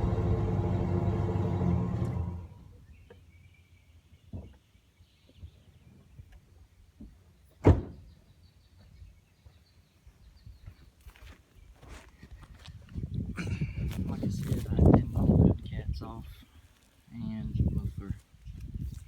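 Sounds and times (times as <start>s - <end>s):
pickup engine idling: 0.0s - 2.8s
loud thunk: 7.6s - 8.0s.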